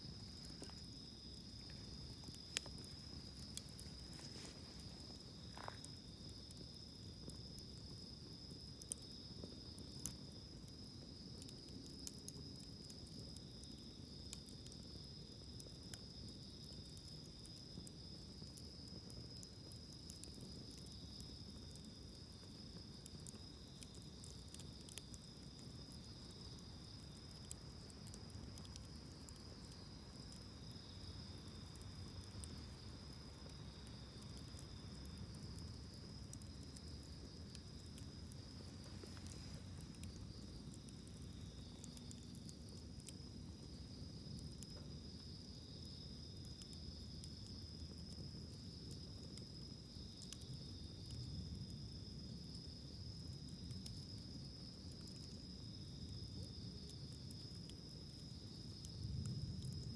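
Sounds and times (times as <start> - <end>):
insect chorus trilling: 0.0 - 7.6
campfire crackling: 0.0 - 59.9.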